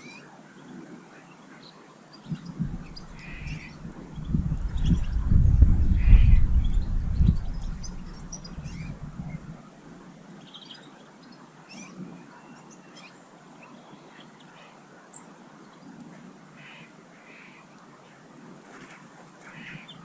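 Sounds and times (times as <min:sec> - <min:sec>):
small birds chirping: 0:00.0 - 0:20.0
loud low rumble with knocks: 0:02.6 - 0:09.6.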